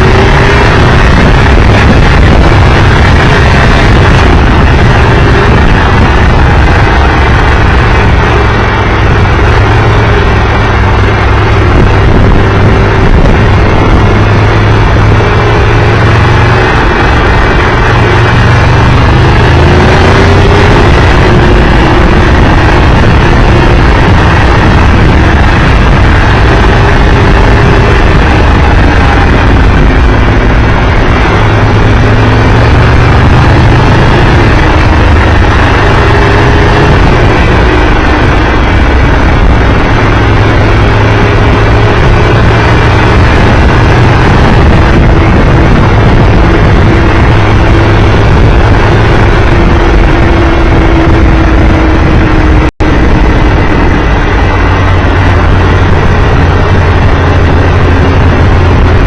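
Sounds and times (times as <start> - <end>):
motorcycle engine running: 0.0 - 59.0
wind noise on microphone: 0.0 - 59.0.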